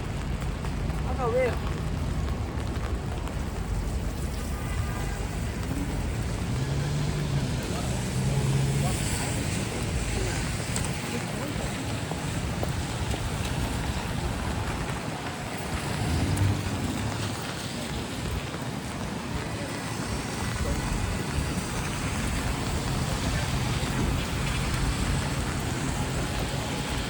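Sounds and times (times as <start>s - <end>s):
rain hiss: 0.0s - 27.0s
traffic engines running: 0.0s - 27.0s
tyres on wet pavement: 0.0s - 27.0s
vehicle passing: 4.2s - 18.5s.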